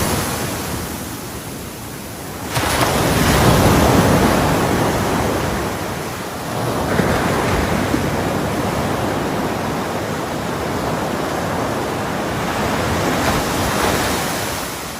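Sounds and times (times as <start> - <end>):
waves breaking and washing in: 0.0 - 14.9.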